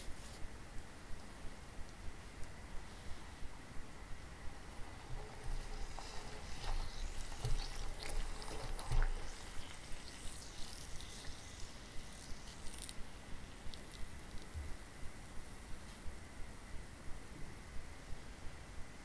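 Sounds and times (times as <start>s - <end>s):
sugar syrup crackling and squishing: 4.4s - 15.2s.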